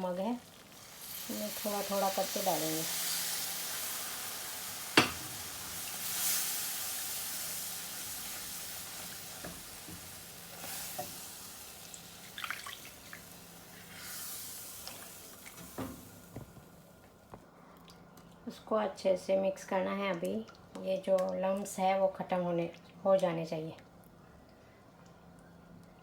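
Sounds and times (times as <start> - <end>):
sizzling in a frying pan: 0.0 - 16.9.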